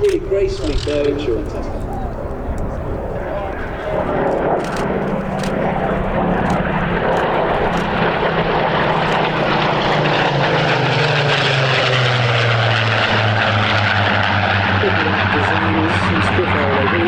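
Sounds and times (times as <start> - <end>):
propeller aircraft engines droning: 0.0 - 17.0.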